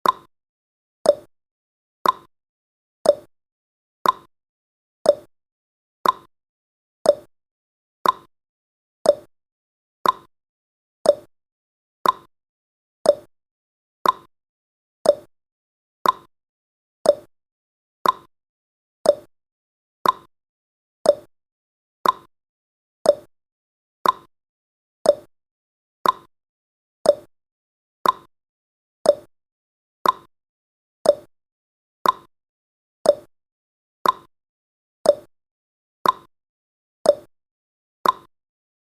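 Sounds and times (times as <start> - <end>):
timer tick-tock clicks: 0.0 - 0.3, 1.0 - 1.3, 2.0 - 2.3, 3.0 - 3.3, 4.0 - 4.3, 5.0 - 5.3, 6.0 - 6.3, 7.0 - 7.3, 8.0 - 8.3, 9.0 - 9.3, 10.0 - 10.3, 11.0 - 11.3, 12.0 - 12.3, 13.0 - 13.3, 14.0 - 14.3, 15.0 - 15.3, 16.0 - 16.3, 17.0 - 17.3, 18.0 - 18.3, 19.0 - 19.3, 20.0 - 20.3, 21.0 - 21.3, 22.0 - 22.3, 23.0 - 23.3, 24.0 - 24.3, 25.0 - 25.3, 26.0 - 26.3, 27.0 - 27.3, 28.0 - 28.3, 29.0 - 29.3, 30.0 - 30.3, 31.0 - 31.3, 32.0 - 32.3, 33.0 - 33.4, 34.0 - 34.3, 35.0 - 35.4, 36.0 - 36.3, 37.0 - 37.3, 38.0 - 38.4.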